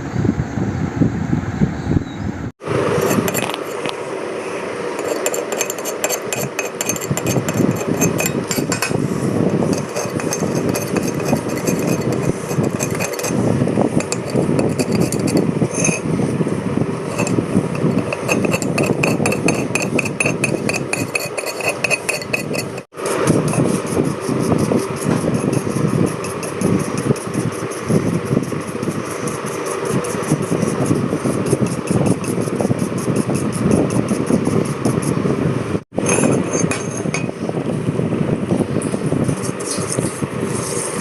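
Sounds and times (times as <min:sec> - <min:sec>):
metal parts clinking and scraping: 0:03.0 - 0:03.9, 0:05.0 - 0:16.1, 0:17.1 - 0:23.7, 0:36.0 - 0:37.4.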